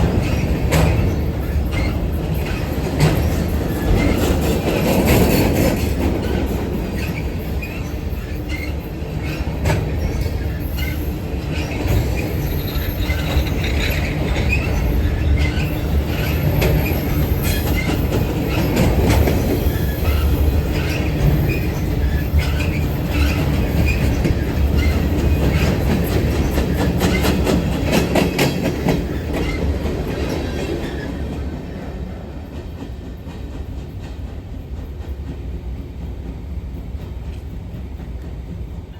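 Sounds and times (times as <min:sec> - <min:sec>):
wheels clacking over rail joints: 0:00.0 - 0:34.3
train cars rumbling past: 0:00.0 - 0:38.9
wheel squeal: 0:06.2 - 0:27.6.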